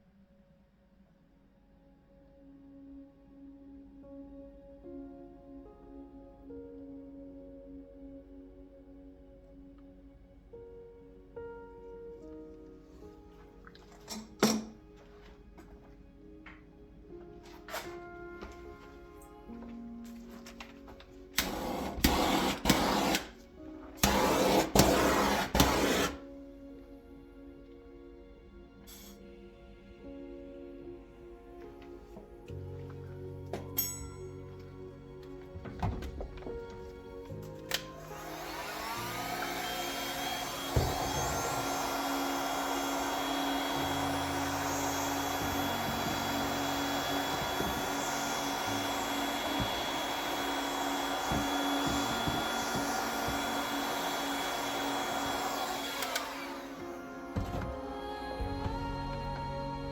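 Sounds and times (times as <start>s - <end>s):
background music: 0.0s - 59.9s
hot-air blower humming: 20.4s - 26.3s, 35.2s - 59.7s
motorised tool bursts: 21.4s - 23.4s, 24.0s - 26.2s, 37.7s - 57.4s.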